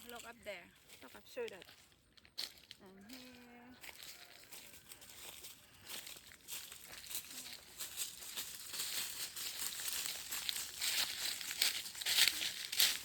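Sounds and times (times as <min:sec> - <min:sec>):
crackling and rustling: 0:03.8 - 0:13.0.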